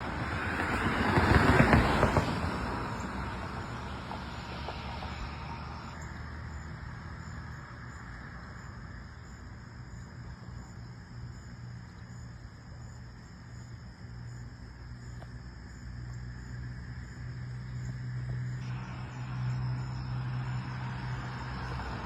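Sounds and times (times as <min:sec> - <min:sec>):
vehicle passing by: 0:00.0 - 0:09.0, 0:15.0 - 0:22.0
insects chirping: 0:01.3 - 0:22.0.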